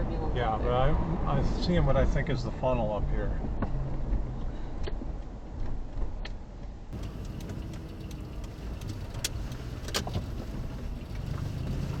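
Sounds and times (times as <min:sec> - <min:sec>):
vehicle cabin rumble: 0:06.9 - 0:12.0.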